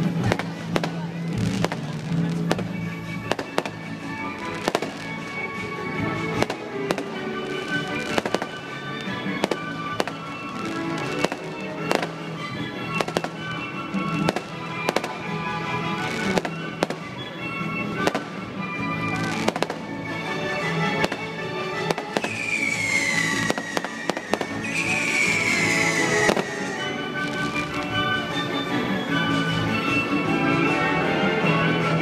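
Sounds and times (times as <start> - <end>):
music: 0.0 - 32.0
fireworks bangs: 0.2 - 12.2, 12.9 - 15.2, 20.9 - 28.0
firework whistles falling in pitch: 22.1 - 27.0.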